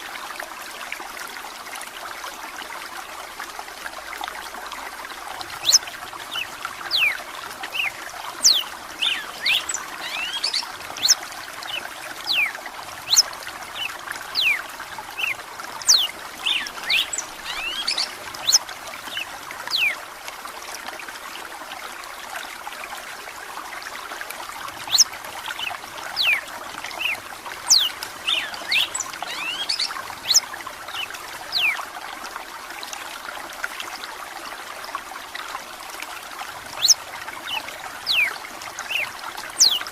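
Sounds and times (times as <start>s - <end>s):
trickle of running water: 0.0s - 39.9s
bird whistling song: 5.6s - 5.8s, 6.4s - 11.2s, 12.3s - 12.5s, 13.1s - 14.6s, 15.2s - 18.6s, 24.9s - 26.4s, 27.0s - 31.8s, 36.8s - 37.0s, 38.1s - 38.3s, 38.9s - 39.8s.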